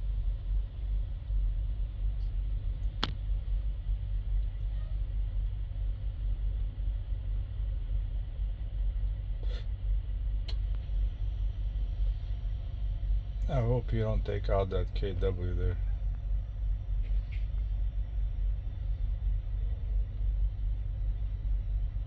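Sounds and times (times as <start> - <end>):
truck engine idling: 10.5 - 22.0.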